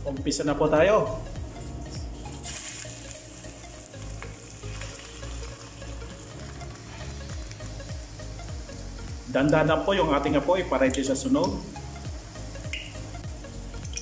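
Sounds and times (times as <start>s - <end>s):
batter sizzling in hot oil: 1.4s - 14.0s
oil popping: 1.8s - 8.5s, 12.6s - 13.2s.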